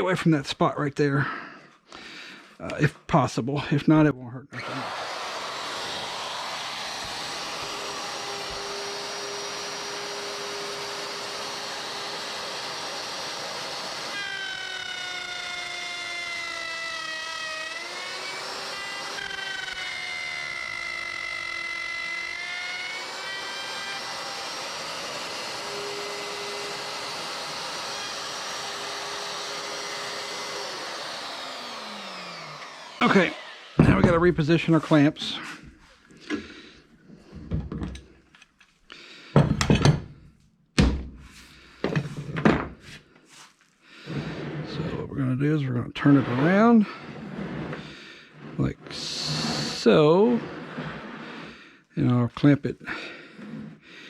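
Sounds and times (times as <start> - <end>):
electric router whining: 4.5 - 35.4, 46.0 - 51.5.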